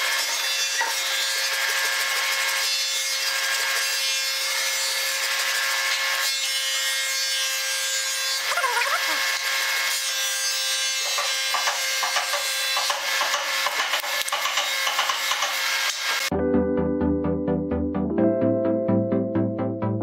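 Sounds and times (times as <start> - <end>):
hand saw rasping through wood: 0.0 - 6.9, 7.5 - 16.3.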